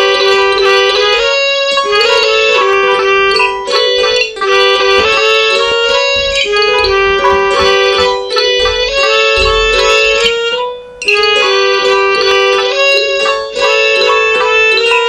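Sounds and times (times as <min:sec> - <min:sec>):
synthesized midi music: 0:00.0 - 0:15.0.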